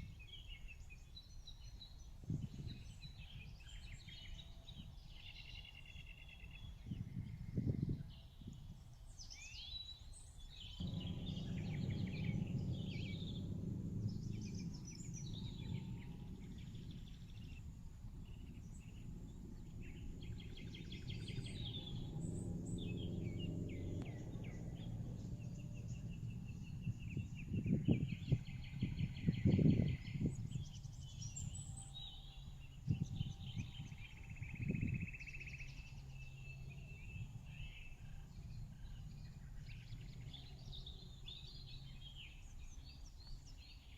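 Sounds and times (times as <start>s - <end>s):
small birds chirping: 9.2s - 43.9s
steady low rumble: 10.6s - 43.2s
low bumps: 10.8s - 31.8s.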